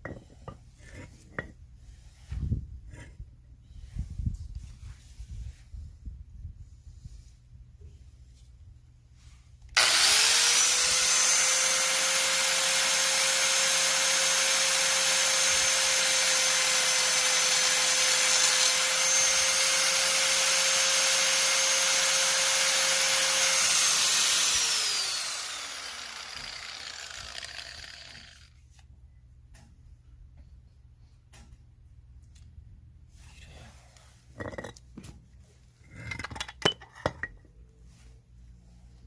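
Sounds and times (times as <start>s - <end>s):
power tool whining: 9.8s - 28.5s.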